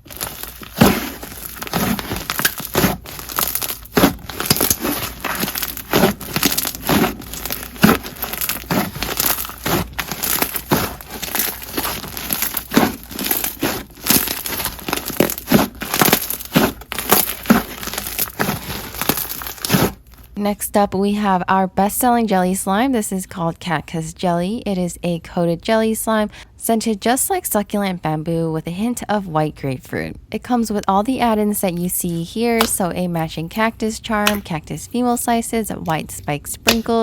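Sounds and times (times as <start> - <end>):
slime crackling and popping: 0.0 - 20.4, 36.6 - 37.0.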